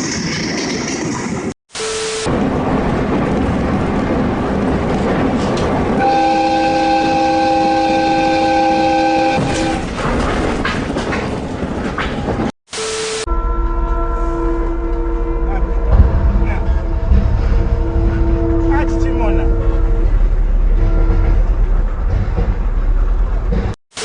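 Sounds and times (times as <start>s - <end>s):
train rumbling past: 2.3s - 12.5s, 13.3s - 23.8s
train horn chord: 6.0s - 9.8s, 13.3s - 21.7s.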